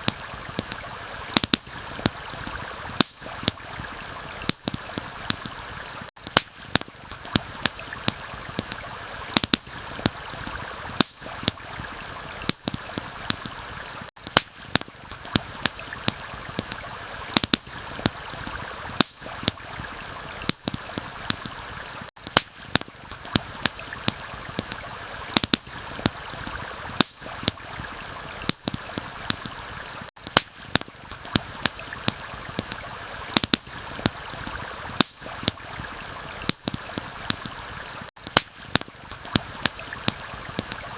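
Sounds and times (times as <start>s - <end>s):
campfire crackling and popping: 0.0s - 40.9s
stream rushing: 0.0s - 40.9s.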